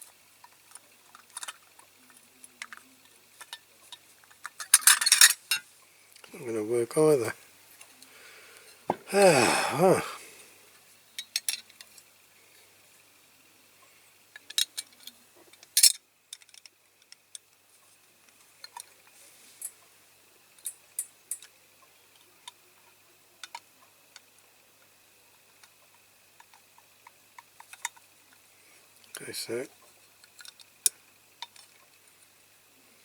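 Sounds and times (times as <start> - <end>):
small toy parts clicking: 0.4 - 2.8, 14.3 - 17.6, 20.6 - 21.5, 23.4 - 24.3, 26.4 - 28.0, 30.2 - 31.7.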